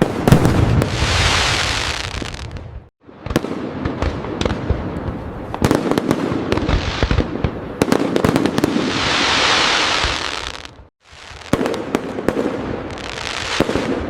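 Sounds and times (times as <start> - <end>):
firework bangs and booms: 0.0 - 14.0
fireworks crackling: 0.0 - 14.0.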